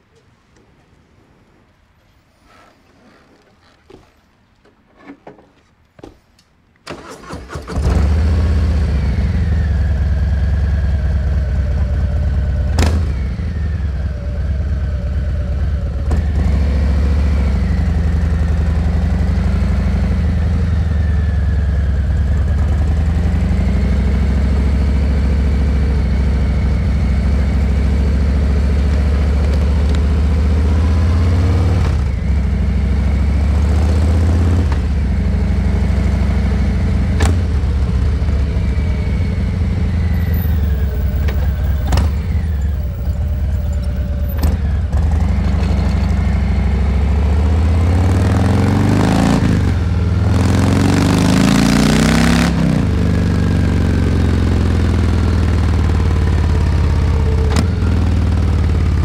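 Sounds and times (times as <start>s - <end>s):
motorcycle engine idling: 19.8s - 30.4s, 34.8s - 47.0s.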